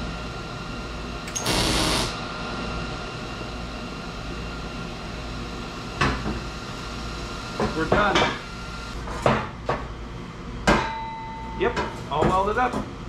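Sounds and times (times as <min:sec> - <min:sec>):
welding arc burst: 0:01.3 - 0:02.2.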